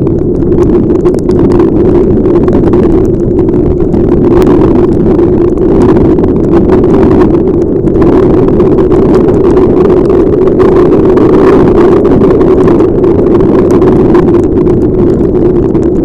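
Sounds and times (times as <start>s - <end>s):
wind and motorcycle rumble: 0.0s - 16.0s.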